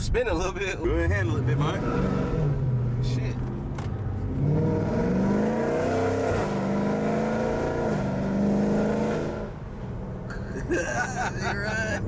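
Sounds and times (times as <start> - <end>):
car engine accelerating hard: 1.2 - 10.0.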